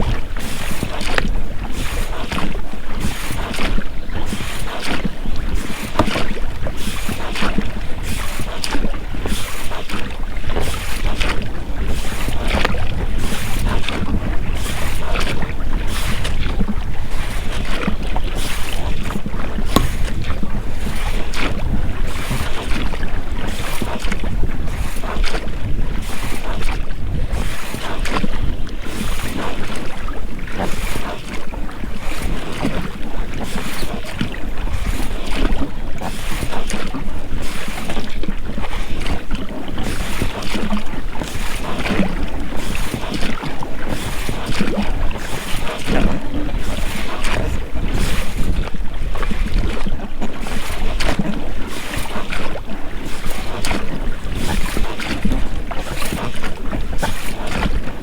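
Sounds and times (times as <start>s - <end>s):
oars splashing in water: 0.0s - 58.0s
wind on microphone: 0.0s - 58.0s
rubber rowlocks creaking: 15.8s - 23.0s.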